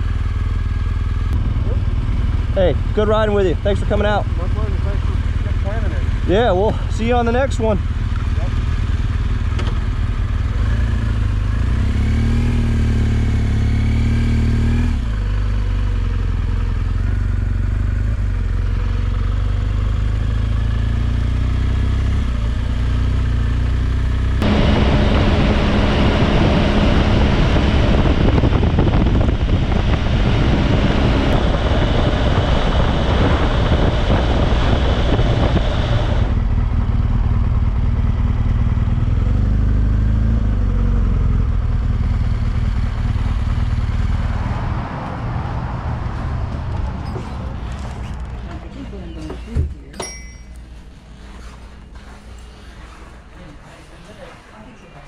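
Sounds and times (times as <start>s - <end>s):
motorcycle engine: 0.0s - 53.3s
rushing noise: 42.8s - 48.6s.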